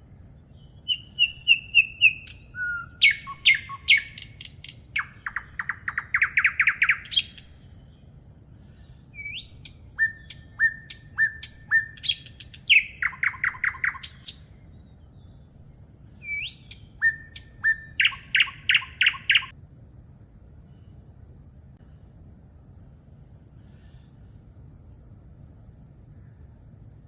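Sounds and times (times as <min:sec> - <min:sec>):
songbird singing: 0:00.0 - 0:19.6.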